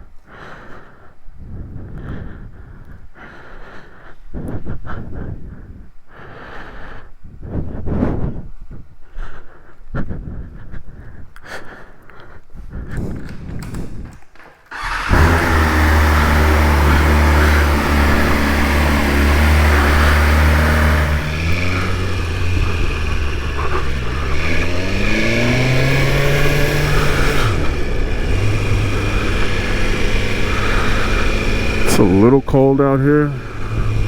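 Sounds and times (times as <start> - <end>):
motorcycle engine idling and revving: 13.2 - 34.0
motorcycle engine starting: 13.2 - 34.0.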